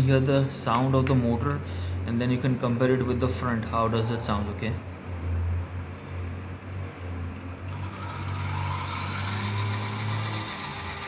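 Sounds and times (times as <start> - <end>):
toy car motor whirring: 7.4 - 11.0.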